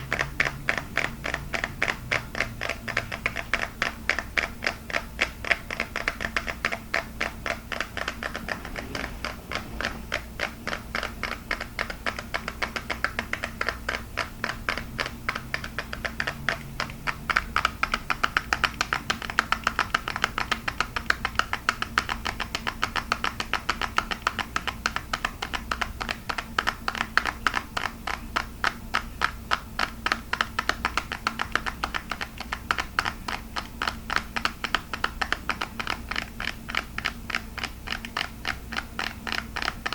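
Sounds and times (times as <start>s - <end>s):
faint low hum: 0.0s - 23.1s
fingertips tapping on plastic: 0.0s - 39.9s.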